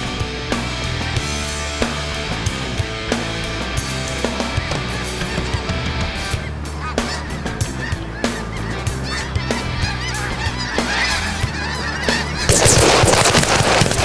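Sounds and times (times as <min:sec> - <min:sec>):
geese honking: 0:00.4 - 0:14.0
loud rushing noise: 0:12.5 - 0:14.0.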